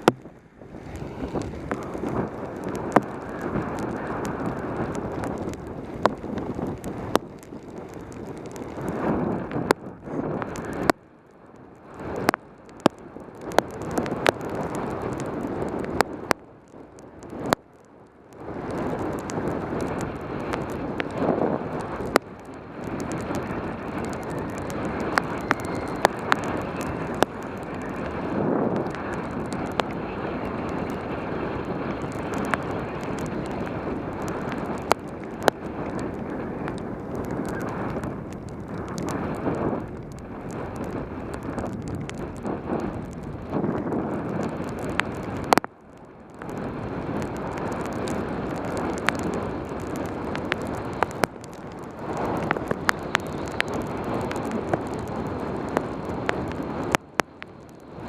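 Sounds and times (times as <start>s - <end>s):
wind rushing over camera: 0.0s - 58.0s
sharp ticks: 12.0s - 30.0s.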